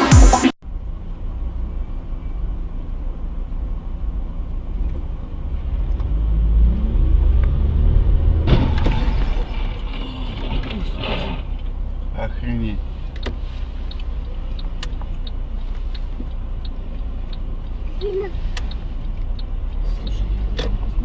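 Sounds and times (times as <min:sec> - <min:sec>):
car engine and road rumble: 0:00.0 - 0:21.0
sudden loud noisy sound: 0:06.6 - 0:11.2.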